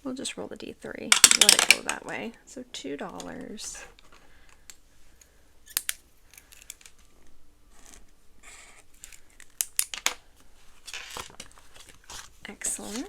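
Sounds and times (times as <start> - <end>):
paper and plastic rustling: 8.6 - 13.0.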